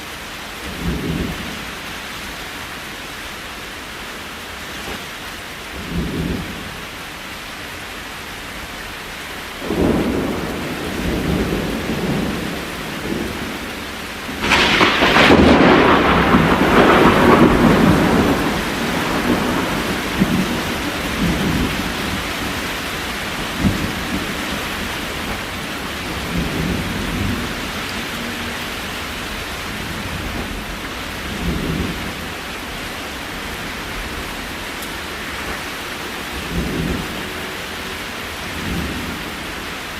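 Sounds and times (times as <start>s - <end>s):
steady rain: 0.0s - 39.9s
thunder rumbling: 9.6s - 39.9s.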